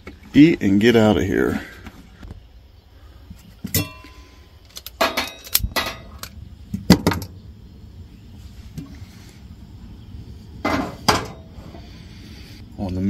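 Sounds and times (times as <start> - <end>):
low steady background noise: 0.0 - 13.0
cooking gear knocking and clinking: 3.7 - 7.3.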